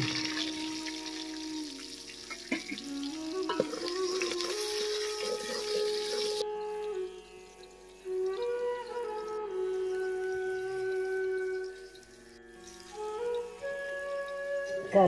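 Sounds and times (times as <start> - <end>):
background music: 0.0 - 15.0
food sizzling in hot oil: 0.0 - 15.0.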